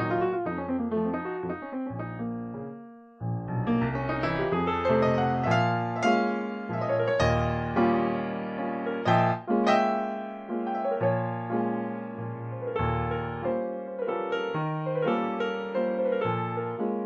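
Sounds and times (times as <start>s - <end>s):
solo jazz piano: 0.0s - 17.0s.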